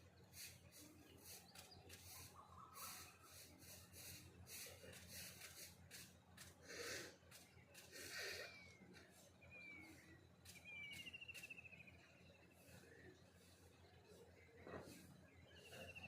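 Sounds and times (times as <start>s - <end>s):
faint bird calls: 0.3s - 16.0s
rustling scraping noise: 0.4s - 6.6s, 14.6s - 15.8s.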